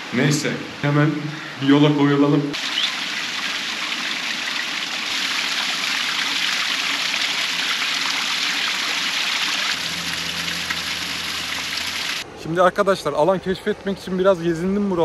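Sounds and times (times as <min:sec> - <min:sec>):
stream water rushing: 0:02.6 - 0:12.3
low hum: 0:09.8 - 0:12.3.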